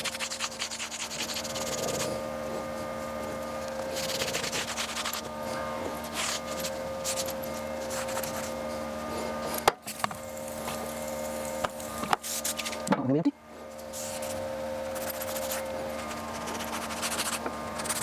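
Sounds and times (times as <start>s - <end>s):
scrubbing on greasy metal: 0.0s - 9.6s
faint steady hum: 0.0s - 18.0s.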